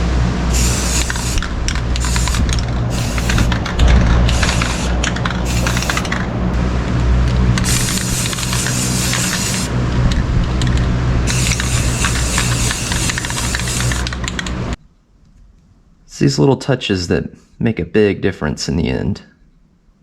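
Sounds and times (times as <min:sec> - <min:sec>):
hissing: 0:00.0 - 0:14.8
motor tool humming: 0:00.0 - 0:14.8
small clicks: 0:07.3 - 0:14.6.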